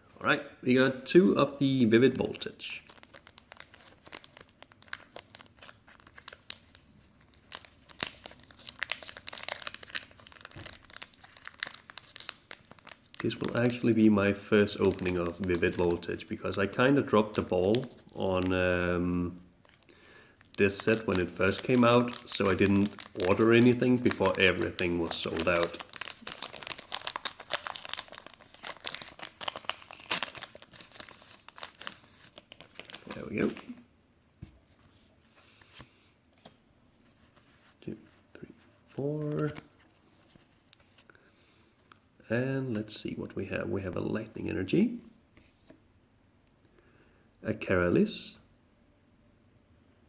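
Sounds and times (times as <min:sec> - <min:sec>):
foil wrapper crinkling: 0:02.8 - 0:18.9, 0:19.6 - 0:33.8.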